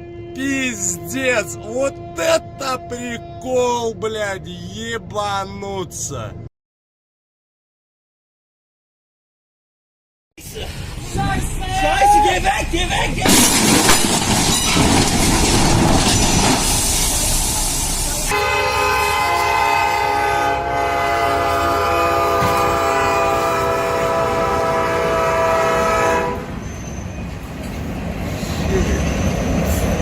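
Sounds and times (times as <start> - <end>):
train horn: 0.0 - 3.5, 18.3 - 26.6
train running over rails: 0.0 - 6.1, 10.6 - 30.0.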